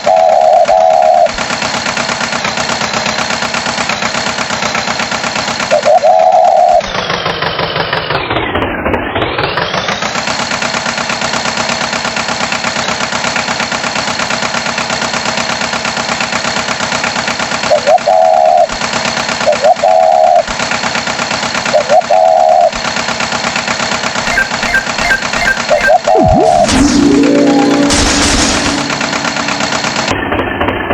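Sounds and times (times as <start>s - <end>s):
cartoon tractor engine chugging: 0.0s - 30.9s
loud wavering tones: 24.2s - 30.7s.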